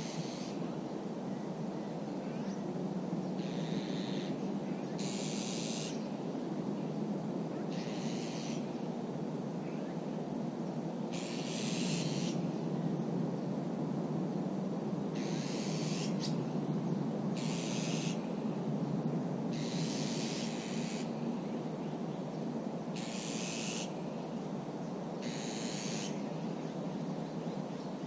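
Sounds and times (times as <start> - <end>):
harsh high hissing calls: 0.0 - 0.7, 3.3 - 6.2, 7.6 - 8.8, 11.1 - 12.5, 15.1 - 16.5, 17.4 - 18.3, 19.5 - 22.0, 22.9 - 27.9.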